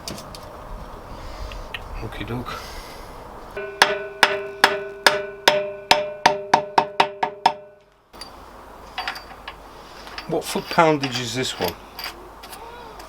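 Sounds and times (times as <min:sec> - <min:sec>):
two-note metallic ring: 0:03.6 - 0:07.9.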